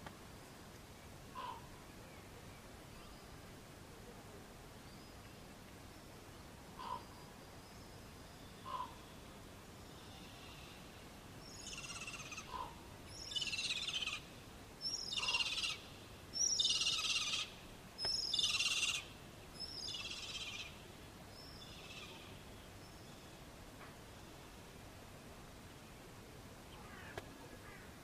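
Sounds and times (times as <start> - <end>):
bird harsh rasping calls: 11.6 - 14.2, 15.1 - 17.5.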